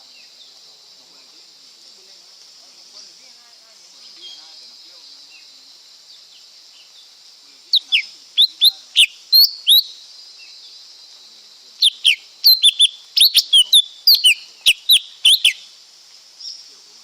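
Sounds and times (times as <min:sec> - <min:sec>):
high insect-like hiss: 0:00.0 - 0:17.0
bird singing sharp whistled notes: 0:07.8 - 0:09.9, 0:11.8 - 0:15.7.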